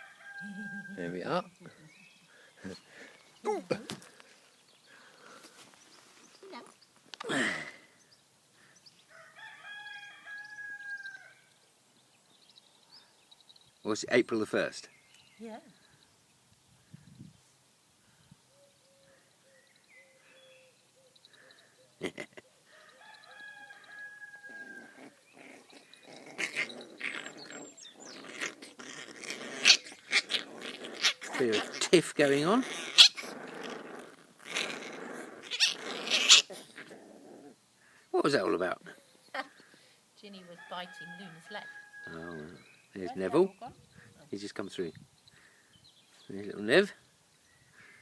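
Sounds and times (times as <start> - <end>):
rooster crowing: 0.0 - 1.4, 9.1 - 11.4, 22.7 - 25.1, 40.3 - 42.6
puppies growling: 24.5 - 38.0, 42.1 - 42.8.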